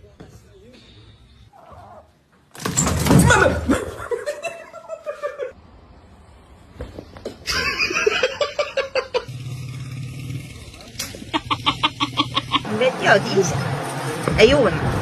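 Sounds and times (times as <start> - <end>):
person laughing: 3.7 - 5.6, 7.5 - 9.3, 11.1 - 12.8.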